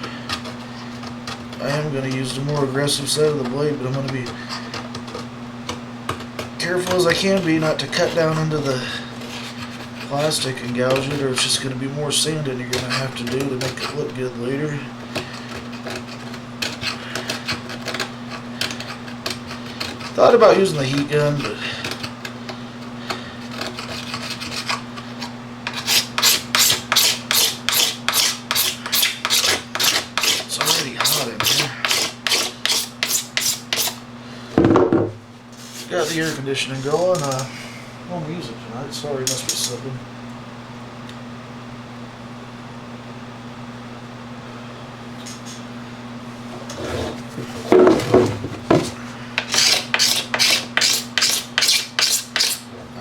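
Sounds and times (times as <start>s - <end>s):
blade scraping plastic: 0.0s - 34.0s, 46.5s - 52.7s
steady low hum: 0.0s - 53.0s.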